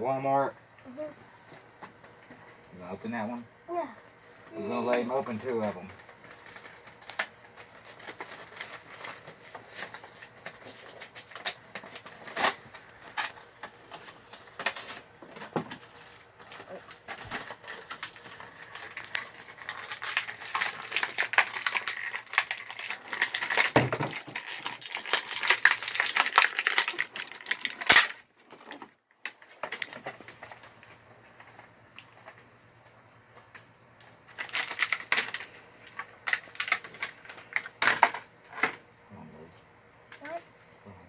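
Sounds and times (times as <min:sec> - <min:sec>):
packaging being torn open: 0:16.6 - 0:30.4.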